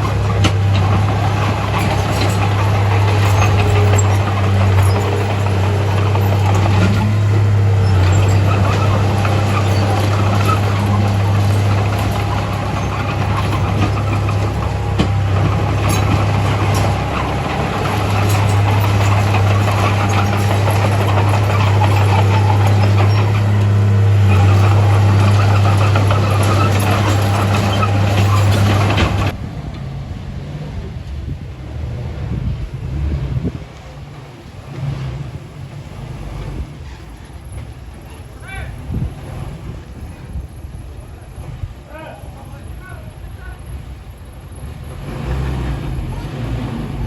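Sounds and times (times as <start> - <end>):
metal clanks and clatter: 0.0 - 29.4
bulldozer diesel engine running: 0.0 - 47.0.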